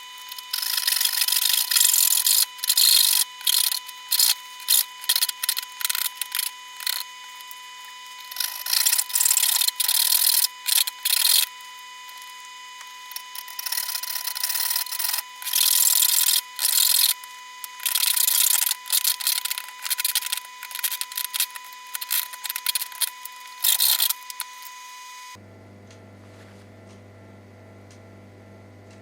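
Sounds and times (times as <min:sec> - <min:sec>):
hand tool rasping: 0:00.2 - 0:07.6, 0:08.2 - 0:12.3, 0:13.1 - 0:24.5.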